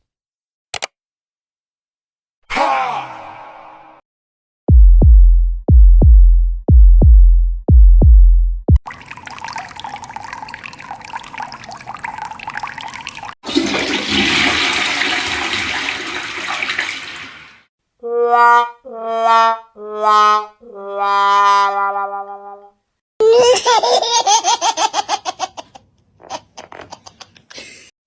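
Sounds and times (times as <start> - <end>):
toilet flushing: 8.9 - 17.7.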